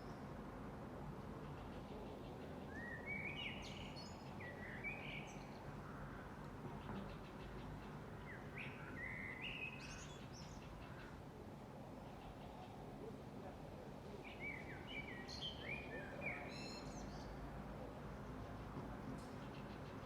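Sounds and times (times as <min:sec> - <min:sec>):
songbird singing: 0:01.9 - 0:11.2, 0:14.1 - 0:17.6.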